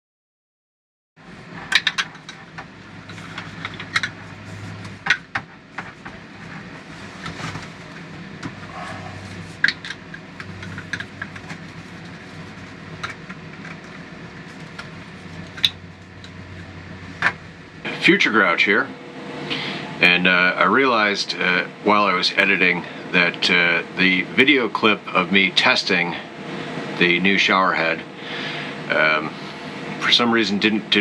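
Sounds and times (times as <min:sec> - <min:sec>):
low mechanical hum: 0:01.2 - 0:31.0
sharp clicks and knocks: 0:01.6 - 0:04.2, 0:09.6 - 0:16.4.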